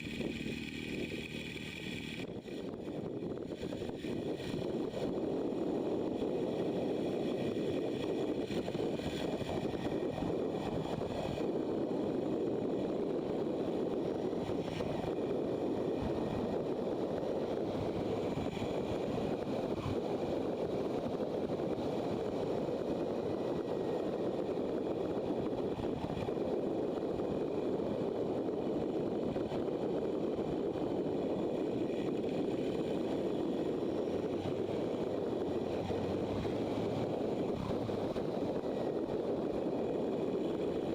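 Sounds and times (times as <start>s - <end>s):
motorcycle engine: 0.0s - 5.0s, 31.1s - 40.9s
road noise: 0.0s - 40.9s
wind rush over microphone: 0.0s - 40.9s.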